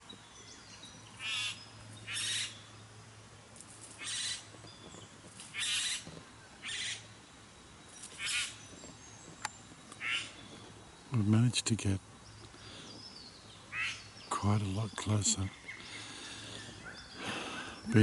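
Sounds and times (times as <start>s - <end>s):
bird giving harsh rasping calls: 1.2s - 2.6s, 4.0s - 4.4s, 5.5s - 6.0s, 8.2s - 8.6s, 10.0s - 10.4s, 13.7s - 14.1s.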